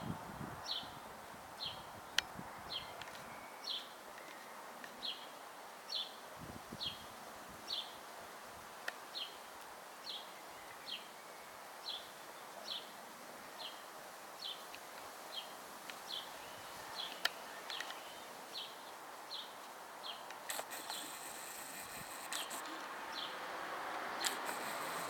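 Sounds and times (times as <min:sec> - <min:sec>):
faint outdoor hiss: 0:00.0 - 0:25.0
sharp clicks: 0:20.4 - 0:22.8, 0:24.2 - 0:25.0
small bird calling: 0:20.5 - 0:23.4, 0:24.2 - 0:25.0.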